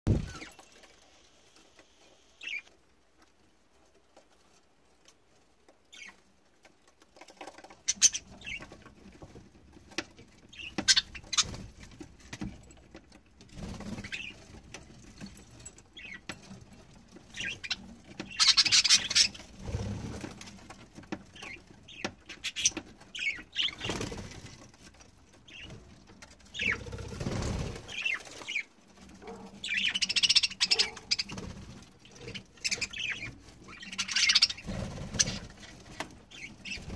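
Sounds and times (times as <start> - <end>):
wings flapping: 0.1 - 0.7, 10.5 - 12.4, 13.5 - 14.6, 21.4 - 24.7, 26.5 - 28.6, 29.2 - 36.9
budgerigars chirping: 7.9 - 8.7, 10.5 - 11.6, 17.3 - 19.6, 21.4 - 24.0, 26.6 - 26.9, 27.9 - 31.4, 32.0 - 35.5, 36.3 - 36.9.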